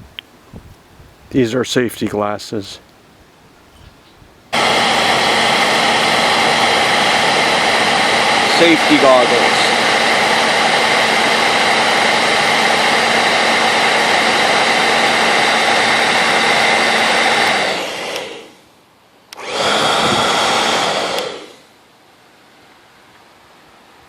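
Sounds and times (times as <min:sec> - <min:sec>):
hair dryer blowing: 0:04.6 - 0:18.6, 0:19.3 - 0:21.7
hair dryer switch click: 0:17.3 - 0:18.5, 0:19.3 - 0:21.4.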